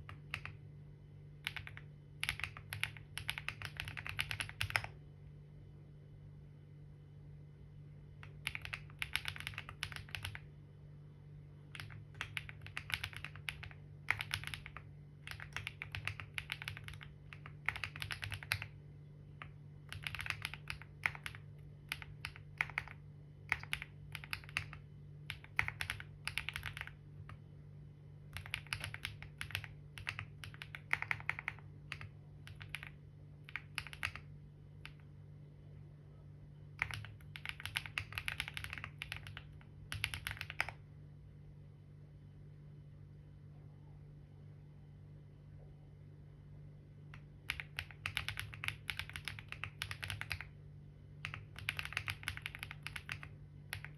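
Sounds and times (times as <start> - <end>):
typing on computer keyboard: 0.0 - 0.6, 1.4 - 5.0, 8.2 - 10.5, 11.7 - 27.4, 28.3 - 35.0, 36.8 - 40.8, 47.2 - 50.6, 51.2 - 53.9.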